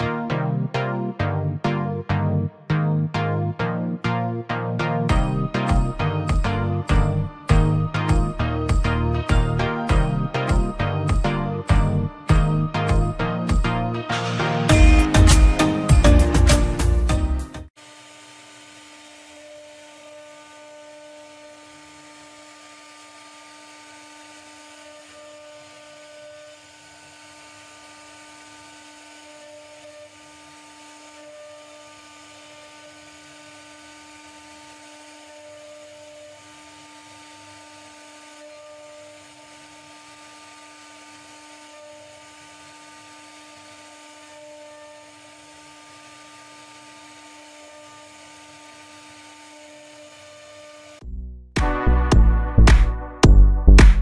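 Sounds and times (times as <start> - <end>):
high intermittent tone: 0.0 - 17.7, 51.0 - 54.0
small electric motor whining: 5.1 - 13.9, 17.7 - 51.0.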